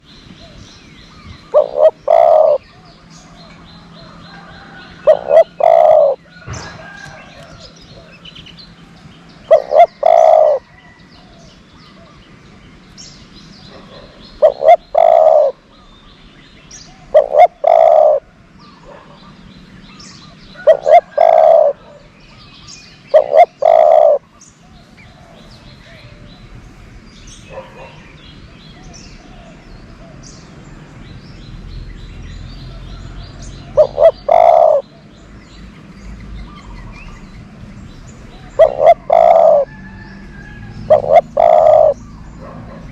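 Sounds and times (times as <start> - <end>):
dove cooing: 1.3 - 2.9, 3.8 - 6.7, 9.5 - 12.2, 13.7 - 15.7, 17.0 - 19.3, 20.6 - 22.2, 23.1 - 26.2, 32.8 - 35.1, 38.3 - 39.8, 40.8 - 42.9.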